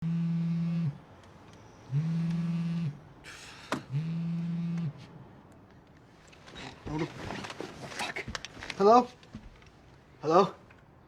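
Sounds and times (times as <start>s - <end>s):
mobile phone vibrating: 0.0s - 1.0s, 1.8s - 3.0s, 3.8s - 5.1s.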